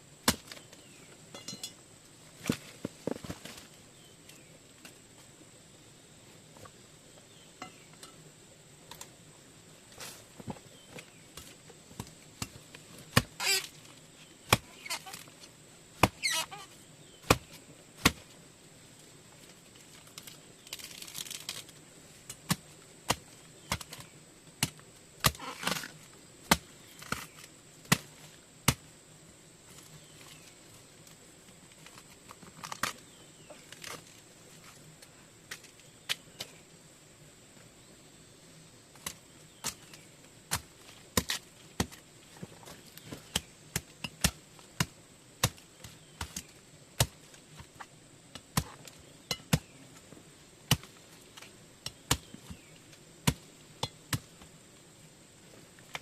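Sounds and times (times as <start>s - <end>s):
hand tool chopping: 16.0s - 16.5s.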